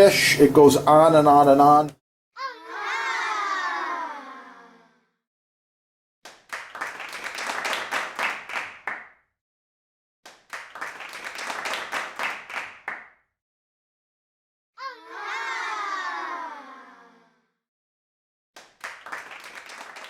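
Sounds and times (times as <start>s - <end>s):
hand clapping: 6.2s - 9.1s, 10.2s - 13.1s, 18.6s - 20.0s.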